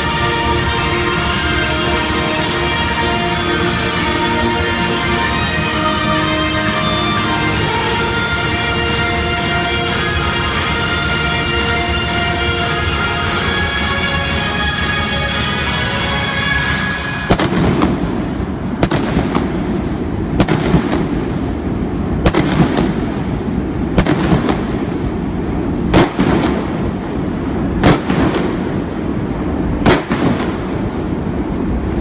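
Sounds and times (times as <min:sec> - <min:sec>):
music playing: 0:00.0 - 0:19.7
fireworks bangs: 0:07.5 - 0:32.0.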